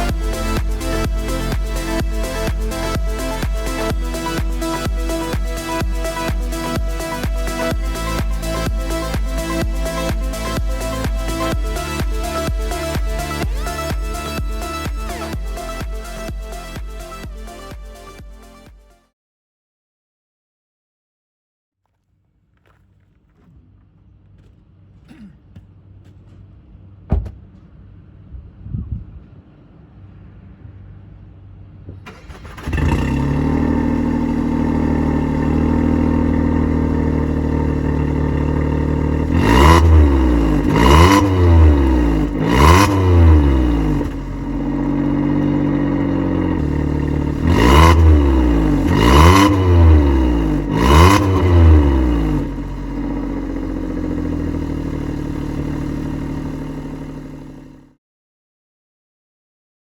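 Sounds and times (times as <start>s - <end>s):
car engine idling and revving: 0.0s - 18.9s, 29.6s - 58.0s.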